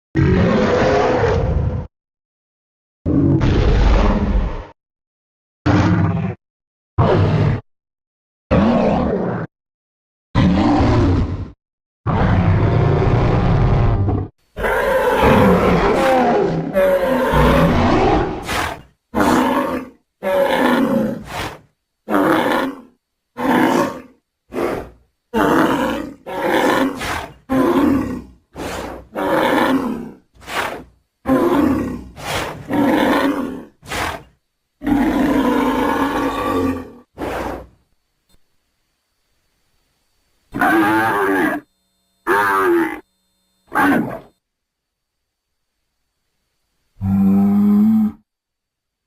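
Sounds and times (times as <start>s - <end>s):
creature roars and bellows: 0.2s - 1.9s, 3.1s - 4.8s, 5.6s - 6.4s, 7.0s - 7.6s, 8.5s - 9.5s, 10.4s - 37.7s, 40.6s - 43.0s, 43.7s - 44.3s, 47.0s - 48.2s.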